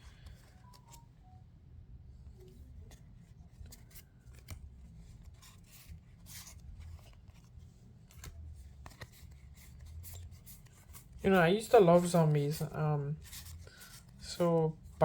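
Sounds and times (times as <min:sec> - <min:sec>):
trading cards clicking and rustling: 0:00.0 - 0:01.1, 0:02.3 - 0:15.0.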